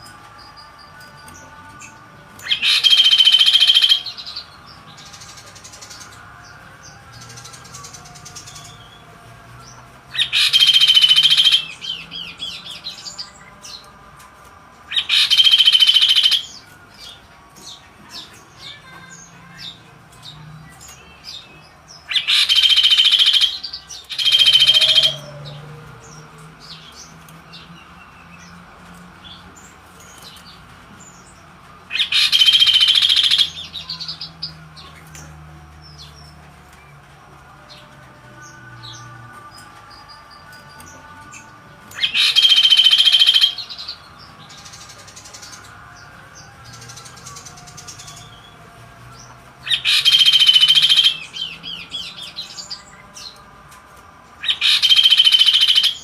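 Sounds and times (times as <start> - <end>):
bird calling loudly: 15.0 - 16.5, 22.1 - 25.4, 42.0 - 43.8, 49.7 - 51.4, 54.4 - 56.0.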